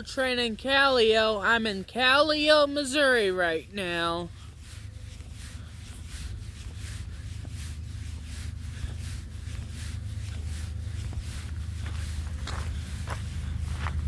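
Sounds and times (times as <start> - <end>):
footsteps crunching: 3.8 - 14.0
low rumble: 4.3 - 14.0.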